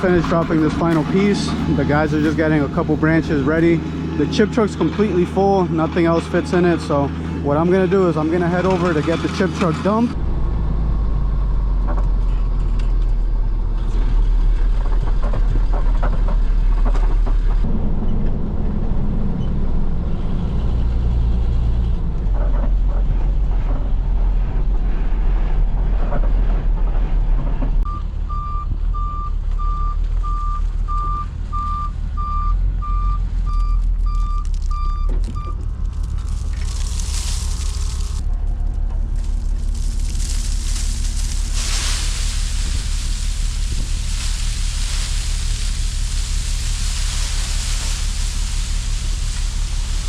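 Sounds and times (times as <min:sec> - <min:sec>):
diesel truck engine rumbling: 0:00.0 - 0:50.0
reversing alarm beeps: 0:27.9 - 0:35.6.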